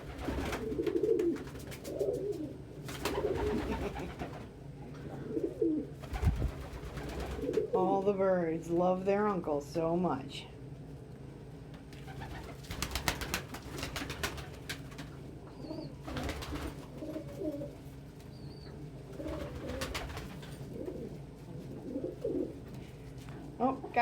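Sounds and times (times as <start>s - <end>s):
pigeons cooing: 0.0s - 7.8s, 12.0s - 22.6s.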